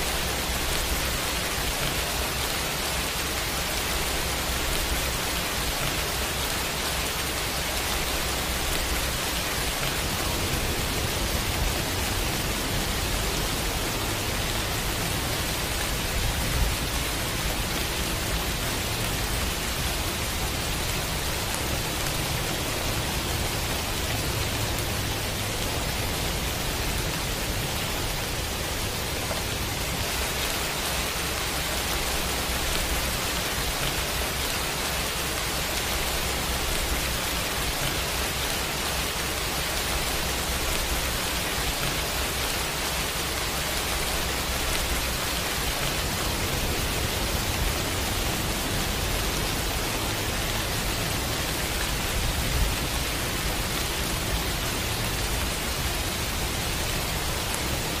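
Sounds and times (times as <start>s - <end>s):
pouring rain: 0.0s - 58.0s.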